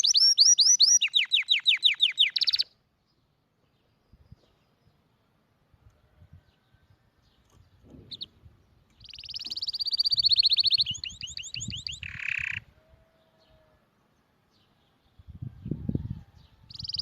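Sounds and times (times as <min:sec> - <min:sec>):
canary singing: 0:00.0 - 0:02.8, 0:08.1 - 0:13.7, 0:16.7 - 0:17.0.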